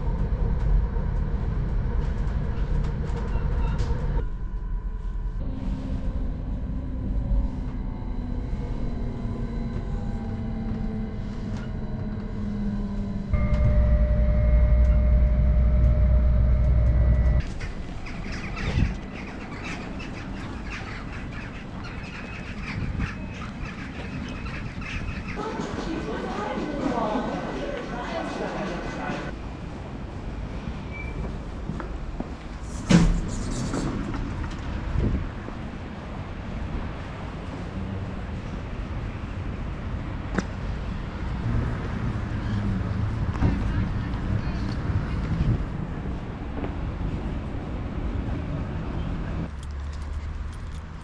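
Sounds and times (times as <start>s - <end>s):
deep train rumble: 0.0s - 51.0s
train motor whine: 7.8s - 18.0s.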